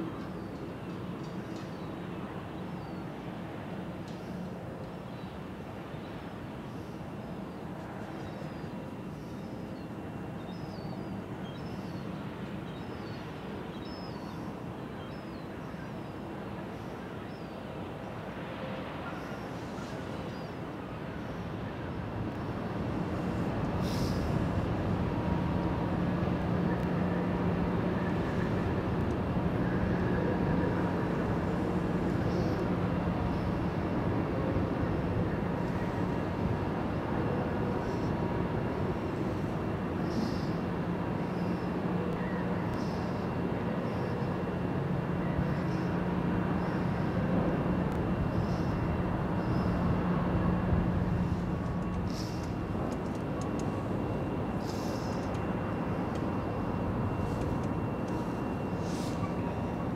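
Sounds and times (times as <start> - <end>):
low engine drone: 13.9 - 59.9.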